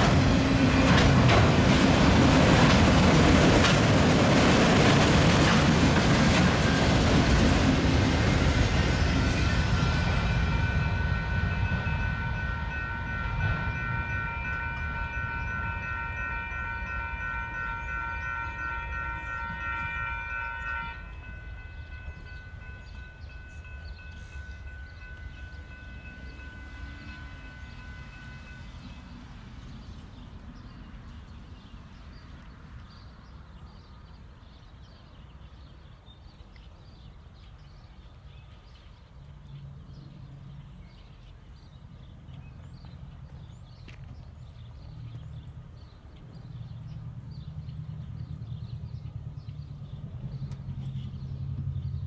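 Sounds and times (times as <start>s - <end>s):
freight train cars rumbling: 0.0s - 52.0s
locomotive horn chord: 6.6s - 29.1s.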